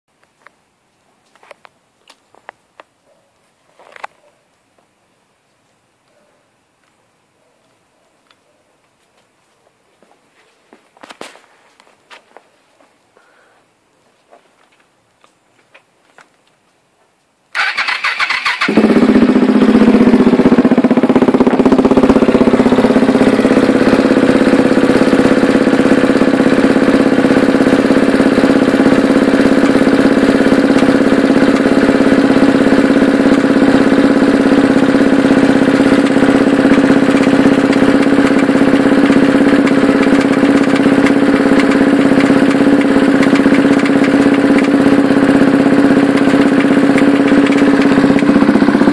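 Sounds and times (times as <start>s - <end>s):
electric starter cranking: 17.6s - 18.9s, 35.1s - 48.9s
engine rattle: 17.6s - 48.9s
motorcycle engine idling: 17.6s - 48.9s.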